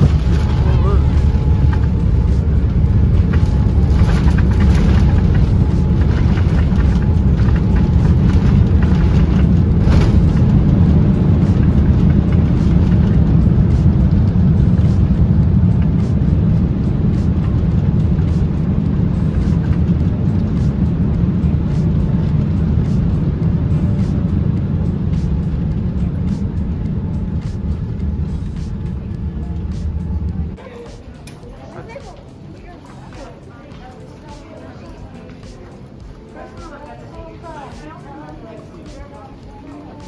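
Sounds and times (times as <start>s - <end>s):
jet engine cabin rumble: 0.0s - 30.6s.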